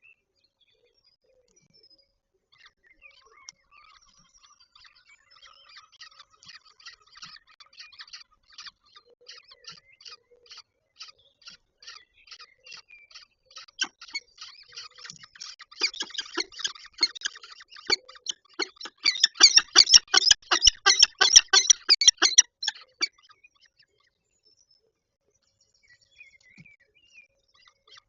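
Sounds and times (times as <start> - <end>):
falcon harsh calls: 18.6 - 23.1.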